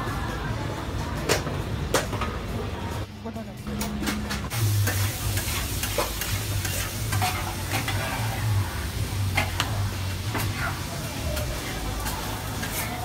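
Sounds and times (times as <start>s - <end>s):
food sizzling on a griddle: 4.5s - 13.0s.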